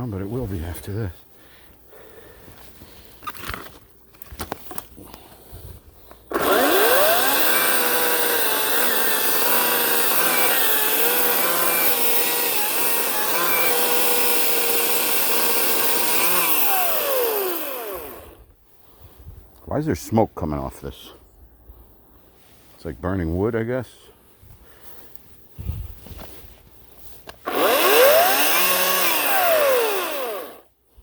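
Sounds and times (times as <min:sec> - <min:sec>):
electric chainsaw cutting wood: 0:06.3 - 0:18.4, 0:27.4 - 0:30.7.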